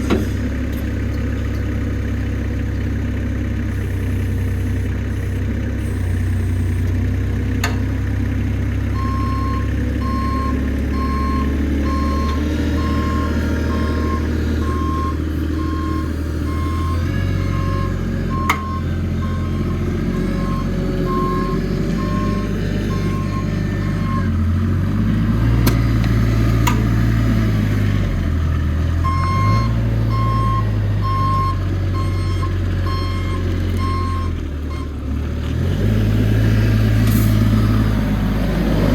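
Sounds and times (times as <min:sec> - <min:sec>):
forklift engine revving: 0:00.0 - 0:38.9
reversing alarm beeping: 0:03.7 - 0:07.0, 0:09.0 - 0:24.5, 0:29.0 - 0:34.9.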